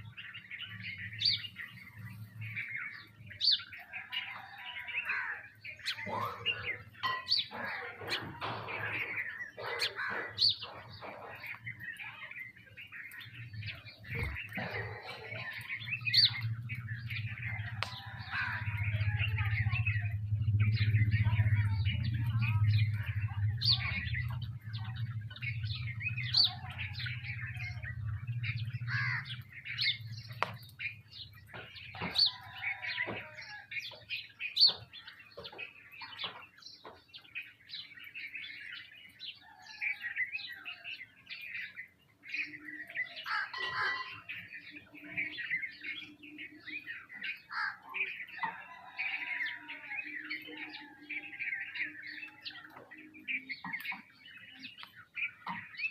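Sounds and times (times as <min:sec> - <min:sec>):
sparrows chirping: 0:00.0 - 0:55.9
low hum: 0:15.6 - 0:31.9.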